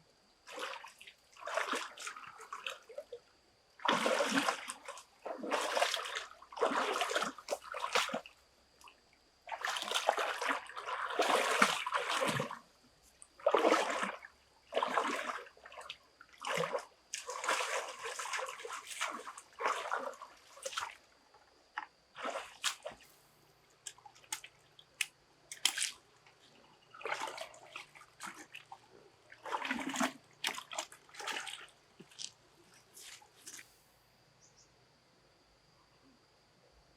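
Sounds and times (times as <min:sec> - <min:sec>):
water splashing and sloshing: 0:00.4 - 0:34.0.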